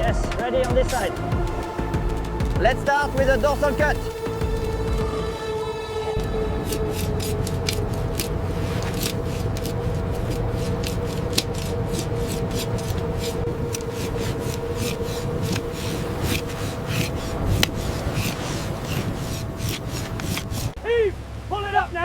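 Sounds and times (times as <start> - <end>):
machinery hum: 0.0 - 21.9
knife sawing through fish: 6.2 - 20.8.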